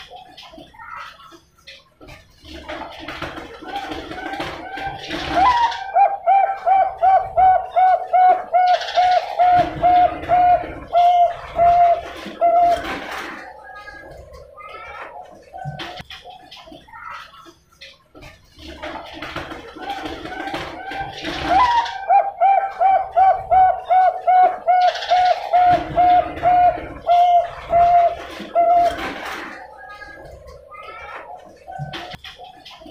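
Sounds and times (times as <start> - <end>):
dove cooing: 3.6 - 16.0, 19.8 - 32.2.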